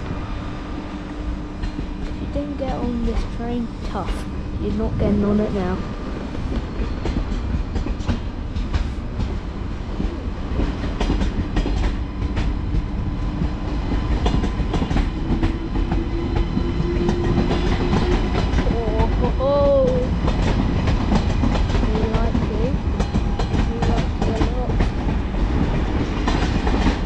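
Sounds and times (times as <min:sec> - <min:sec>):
train hum: 0:00.0 - 0:27.0
train rolling rumble: 0:00.0 - 0:27.0
wheels clicking over rail joints: 0:17.1 - 0:27.0.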